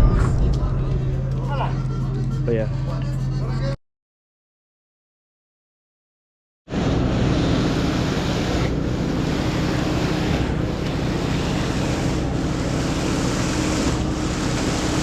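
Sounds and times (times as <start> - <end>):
diesel engine running: 6.7 - 15.0
loud rushing hiss of pump: 6.7 - 15.0.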